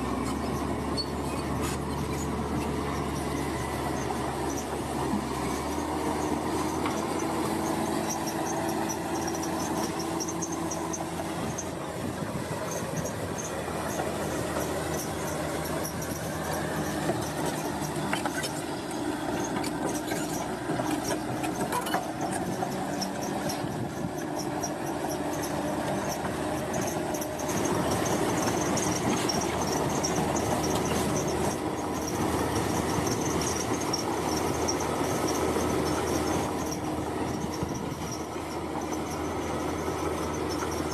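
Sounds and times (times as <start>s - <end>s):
heavy machinery engine noise: 0.0s - 40.9s
high metallic squealing: 0.1s - 11.8s.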